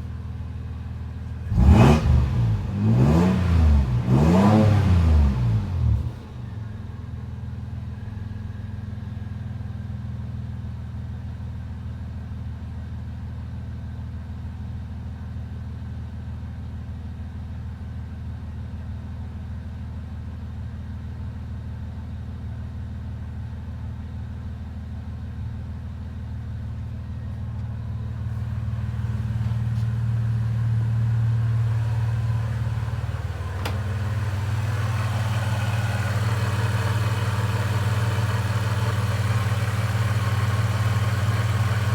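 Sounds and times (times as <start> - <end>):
car engine idling: 26.4 - 41.9.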